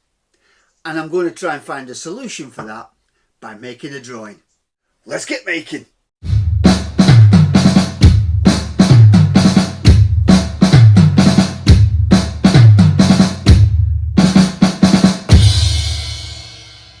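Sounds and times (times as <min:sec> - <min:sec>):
rock drum beat: 0:06.2 - 0:17.0.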